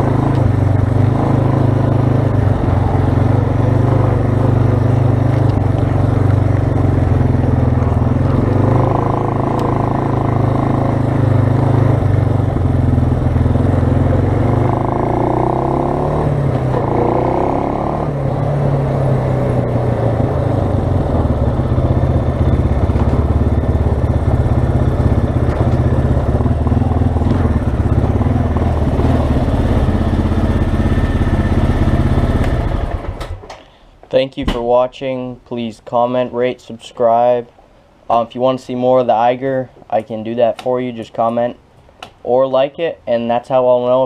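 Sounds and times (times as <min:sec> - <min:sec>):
atv engine running: 0:00.0 - 0:33.5.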